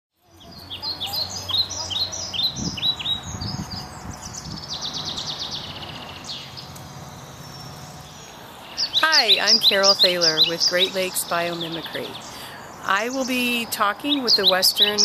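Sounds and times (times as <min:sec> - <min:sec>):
low steady background hum: 0:00.2 - 0:15.0
songbirds chirping and trilling: 0:00.2 - 0:15.0.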